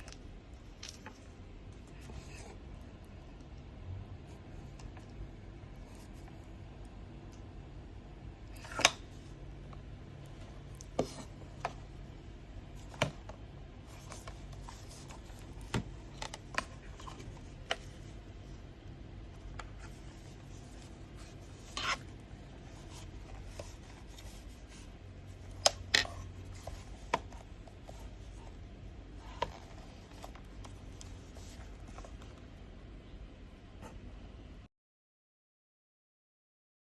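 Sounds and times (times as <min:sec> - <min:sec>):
hands handling headset packaging: 0:08.8 - 0:32.5.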